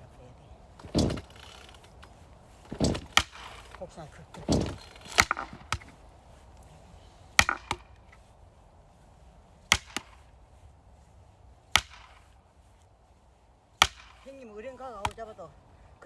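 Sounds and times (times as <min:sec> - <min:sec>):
axe chopping wood: 0:00.8 - 0:01.6, 0:02.6 - 0:06.0, 0:07.3 - 0:08.2, 0:09.7 - 0:10.3, 0:11.7 - 0:12.3, 0:13.8 - 0:14.3, 0:15.0 - 0:15.3.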